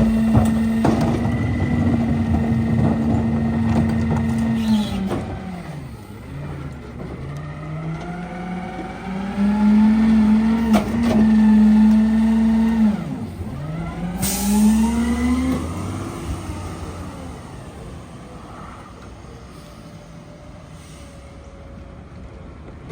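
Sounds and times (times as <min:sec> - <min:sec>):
packer compacting trash: 0:00.0 - 0:08.7
garbage truck engine revving: 0:00.0 - 0:19.4
hiss: 0:14.2 - 0:14.9.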